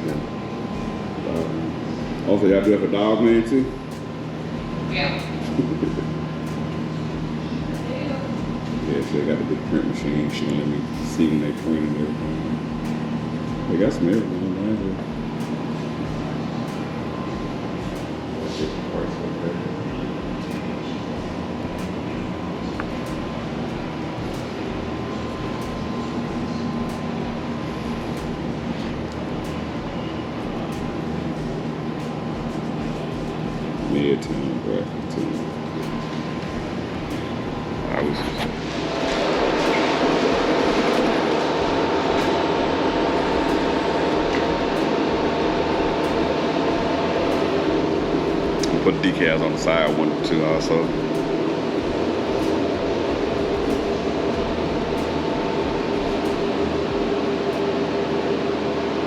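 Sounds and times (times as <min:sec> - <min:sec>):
printer mechanical hum: 0:00.0 - 0:59.0
print head ticks: 0:19.9 - 0:57.7
held tones: 0:19.9 - 0:59.0.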